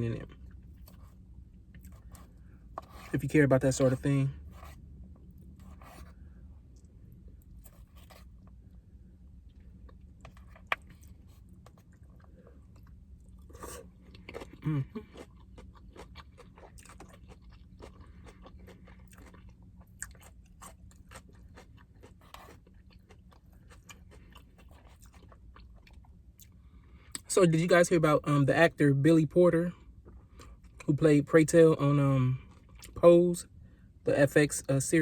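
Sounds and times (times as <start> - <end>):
low hum: 0.0 - 31.0
person chewing food: 0.3 - 3.1, 9.4 - 27.2, 32.4 - 33.0.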